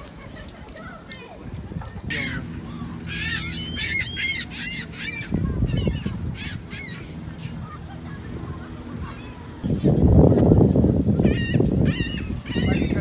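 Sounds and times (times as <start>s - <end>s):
birds squawking: 2.1s - 7.8s, 11.2s - 13.0s.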